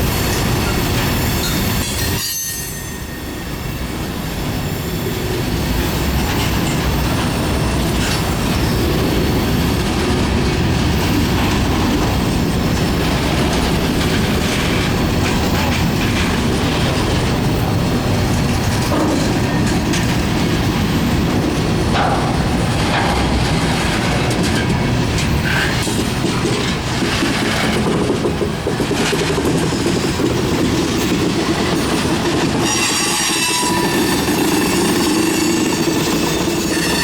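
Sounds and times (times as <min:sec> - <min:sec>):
freight train rumbling past: 0:00.0 - 0:37.0
wheel squeal: 0:00.2 - 0:04.0, 0:32.4 - 0:37.0
cars clattering over rail joints: 0:10.0 - 0:32.7.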